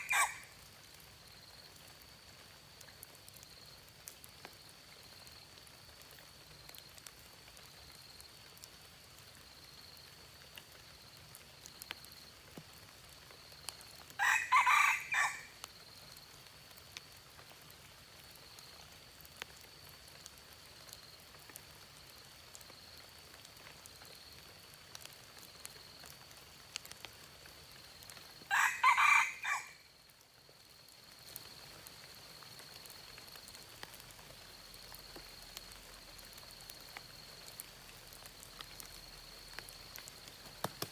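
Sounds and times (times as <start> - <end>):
rooster crowing: 0.0 - 0.5, 14.2 - 15.5, 28.5 - 29.8
small ticks: 15.6 - 28.4, 30.8 - 40.9.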